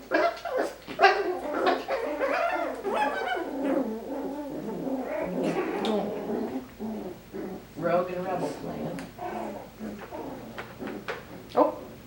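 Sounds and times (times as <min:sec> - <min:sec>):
puppies whining and yipping: 0:00.0 - 0:06.2.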